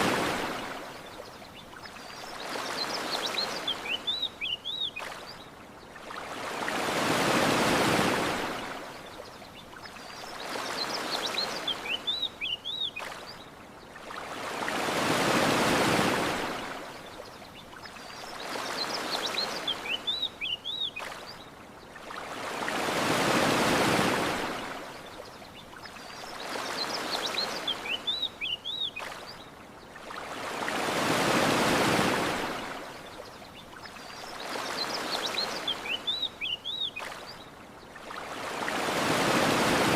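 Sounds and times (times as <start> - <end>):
ocean waves washing onto beach: 0.0 - 39.9
bird chirps: 1.5 - 5.4, 9.5 - 13.3, 17.5 - 21.3, 25.5 - 29.5, 33.5 - 37.5.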